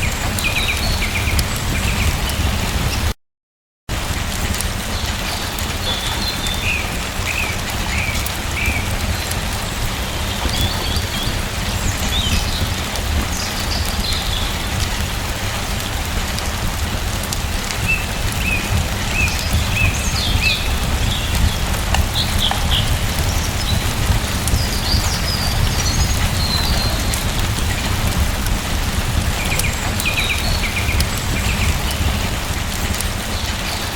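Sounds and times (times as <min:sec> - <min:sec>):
small birds chirping: 0:00.0 - 0:03.1, 0:04.8 - 0:15.2, 0:15.8 - 0:33.9
rain falling: 0:00.0 - 0:03.2, 0:03.9 - 0:33.9
deep low rumble: 0:16.0 - 0:33.2.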